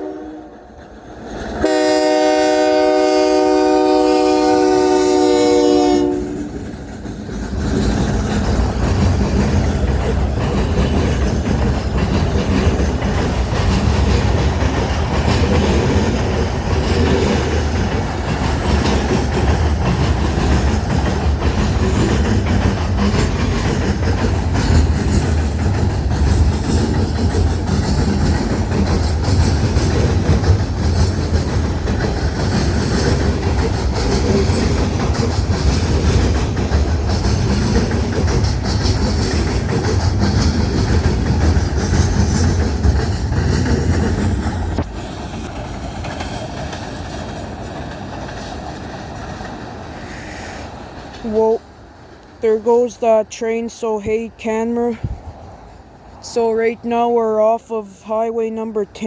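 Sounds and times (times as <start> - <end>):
train horn: 0.0 - 0.8, 1.6 - 6.6
train rumbling past: 0.0 - 59.0
wheels clacking over rail joints: 0.7 - 53.3.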